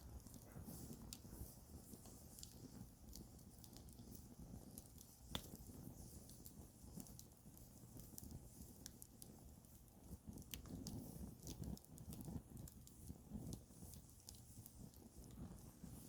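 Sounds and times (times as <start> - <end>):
campfire crackling: 0.2 - 16.0.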